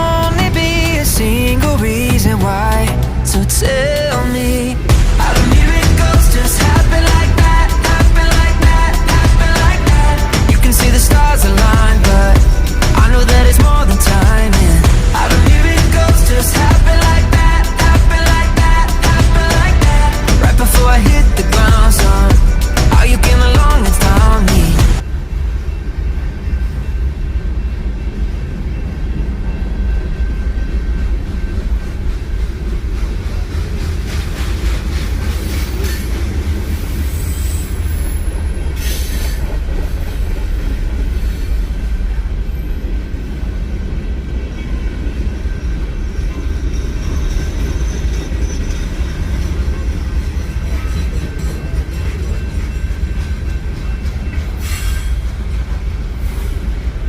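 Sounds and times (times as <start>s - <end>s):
train wheels rumbling on rail: 0.0s - 57.0s
high wheel squeal: 35.4s - 40.3s, 44.6s - 55.4s.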